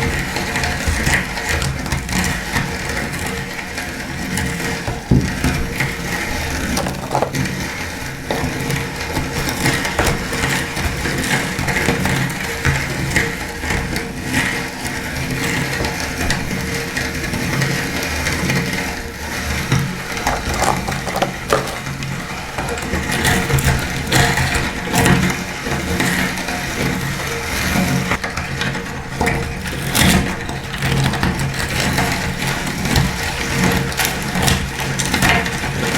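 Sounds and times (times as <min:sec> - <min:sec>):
food crunching and crackling: 0:04.9 - 0:12.4, 0:19.8 - 0:24.7.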